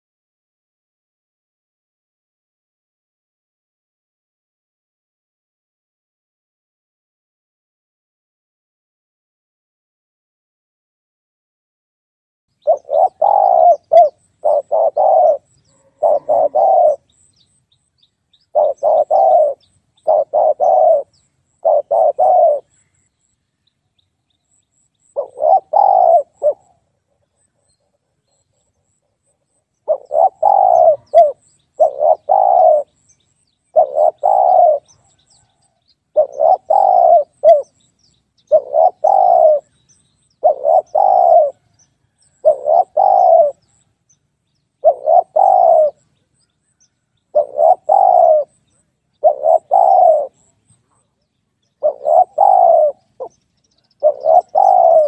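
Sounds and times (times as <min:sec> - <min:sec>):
dove cooing: 0:12.6 - 0:17.5, 0:18.4 - 0:22.8, 0:25.1 - 0:29.2, 0:29.8 - 0:33.0, 0:33.7 - 0:37.8, 0:38.4 - 0:39.8, 0:40.4 - 0:43.8, 0:44.8 - 0:46.1, 0:47.3 - 0:51.0, 0:51.8 - 0:55.0.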